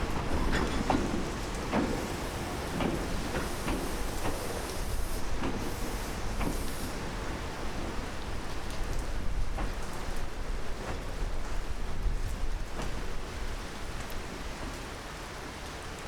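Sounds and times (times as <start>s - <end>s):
heavy rain hissing: 0.0s - 8.6s.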